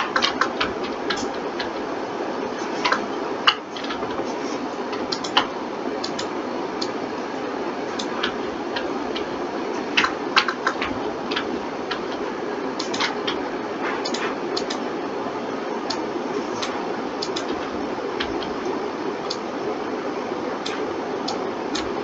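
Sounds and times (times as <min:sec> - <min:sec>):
computer mouse and keyboard clicks: 0:00.0 - 0:01.9, 0:02.6 - 0:07.0, 0:07.9 - 0:14.8, 0:15.9 - 0:18.6, 0:20.6 - 0:22.0
steady hiss: 0:00.0 - 0:22.0.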